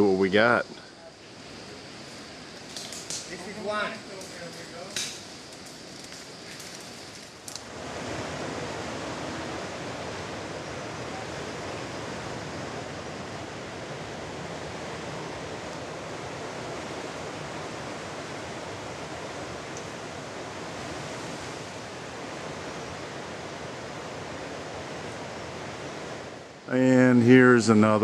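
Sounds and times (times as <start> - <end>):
surf washing on rocky shore: 1.4 - 27.1
faint clicks: 4.1 - 7.7, 19.7 - 19.9.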